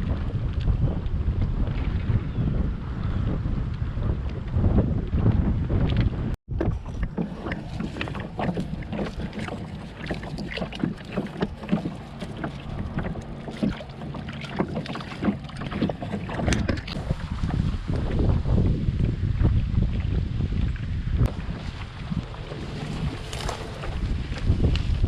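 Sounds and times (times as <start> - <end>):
wind rumble on microphone: 0.0 - 25.0
paddle splashes: 6.5 - 18.5, 19.4 - 25.0.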